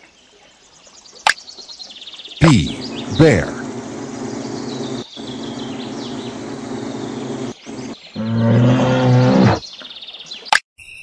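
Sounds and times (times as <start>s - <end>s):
birds chirping: 2.4s - 10.1s
loud low sustained sound: 2.6s - 8.0s.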